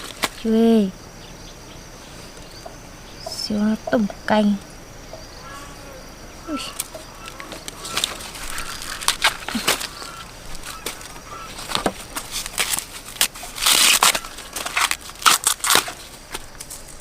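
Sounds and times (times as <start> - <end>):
crunching and snapping cracks: 0.0 - 0.5, 6.7 - 17.0.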